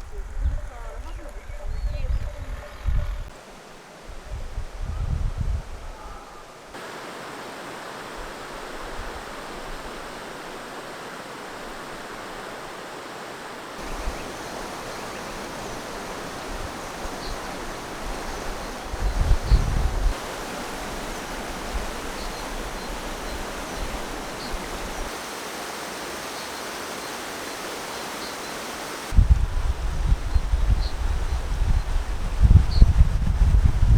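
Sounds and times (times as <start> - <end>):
wind rumble on microphone: 0.0 - 3.4, 4.1 - 6.4, 13.8 - 25.1, 29.1 - 33.9
stream running water: 3.3 - 33.9.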